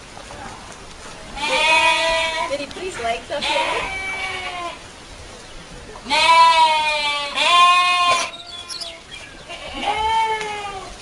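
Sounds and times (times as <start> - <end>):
goat kids bleating: 1.3 - 2.6, 3.4 - 4.8, 6.0 - 11.0.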